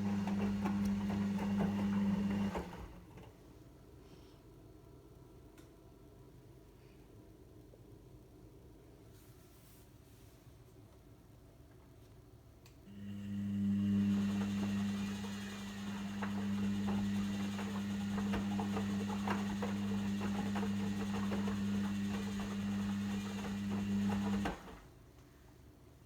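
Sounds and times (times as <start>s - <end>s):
washing machine humming: 0.0s - 3.6s, 12.9s - 25.0s.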